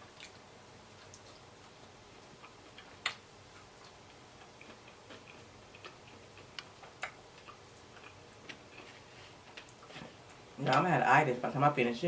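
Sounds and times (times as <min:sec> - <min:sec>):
chewing clicks and smacks: 0:01.0 - 0:01.4, 0:02.3 - 0:08.8.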